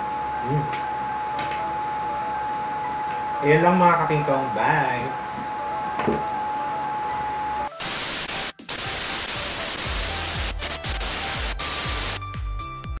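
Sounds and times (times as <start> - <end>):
loud static hiss: 7.6 - 12.2.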